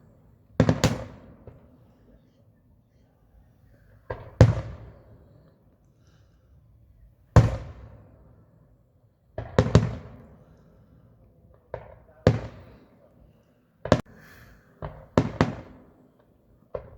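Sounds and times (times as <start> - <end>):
fireworks bursting with bangs: 0.0 - 2.2, 4.0 - 5.2, 7.4 - 8.2, 9.3 - 10.5, 11.5 - 13.0, 13.8 - 16.9.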